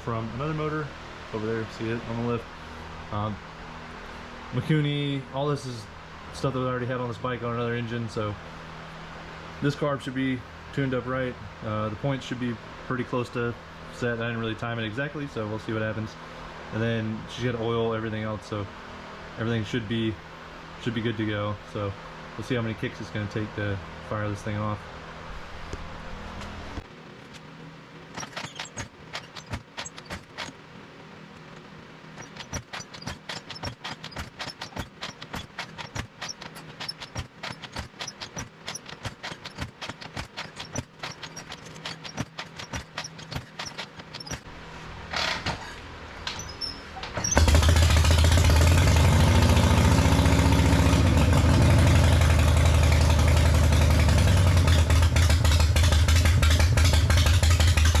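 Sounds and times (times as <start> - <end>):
motorcycle engine starting and running: 25.7 - 58.0.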